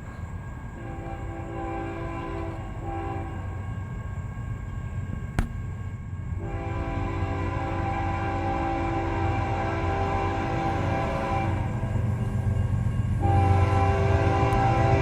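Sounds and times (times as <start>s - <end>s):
locomotive air horn blasts: 0.8s - 3.6s, 6.4s - 11.8s, 13.2s - 15.0s.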